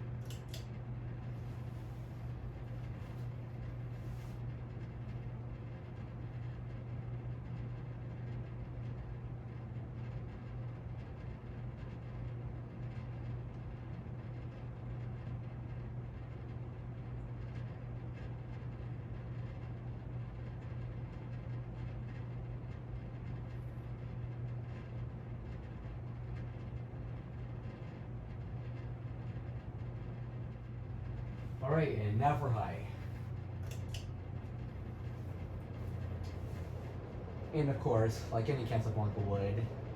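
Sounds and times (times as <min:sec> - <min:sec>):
air rushing from fan blades: 0:00.0 - 0:06.8, 0:27.5 - 0:39.9
ceiling fan motor hum: 0:00.0 - 0:39.9.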